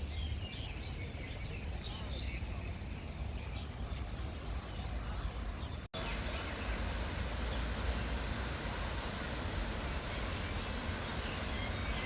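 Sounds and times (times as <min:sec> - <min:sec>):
fountain water rushing: 0:00.8 - 0:12.0.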